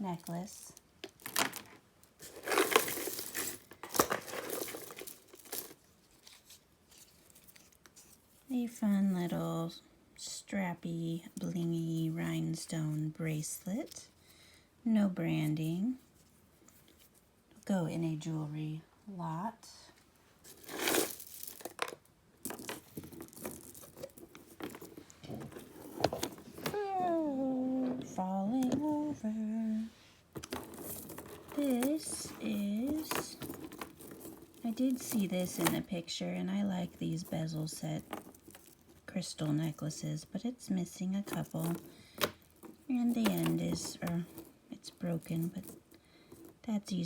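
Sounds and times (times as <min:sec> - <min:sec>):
rustling handling noise: 0:00.0 - 0:09.6, 0:15.3 - 0:17.7, 0:19.9 - 0:47.0
jewelry clinking: 0:02.2 - 0:07.6, 0:20.4 - 0:27.4, 0:30.4 - 0:36.0, 0:36.8 - 0:39.9, 0:41.2 - 0:47.0.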